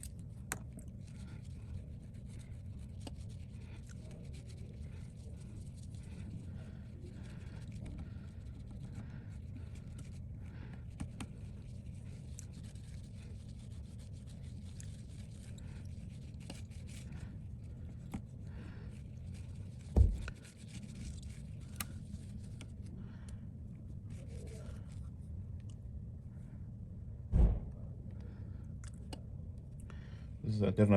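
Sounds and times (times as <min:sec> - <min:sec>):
rubbing on phone screen: 0:00.0 - 0:23.0, 0:23.6 - 0:25.3
low hum: 0:17.1 - 0:30.4
dull knock: 0:20.0 - 0:20.3, 0:27.3 - 0:27.8.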